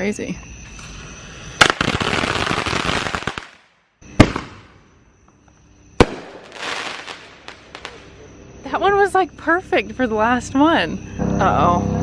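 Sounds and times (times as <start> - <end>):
fireworks crackling: 1.6 - 4.8, 6.0 - 8.2
fireworks bangs: 1.6 - 4.9, 6.0 - 8.2.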